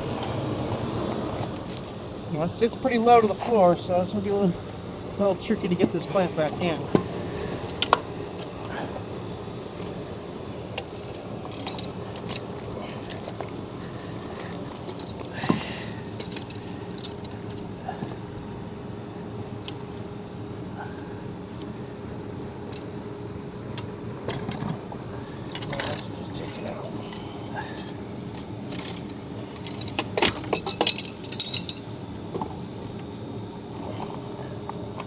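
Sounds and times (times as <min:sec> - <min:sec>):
steady background hum: 0:00.0 - 0:35.0
light metallic clinks and knocks: 0:10.8 - 0:13.6, 0:16.0 - 0:17.6, 0:24.3 - 0:32.5.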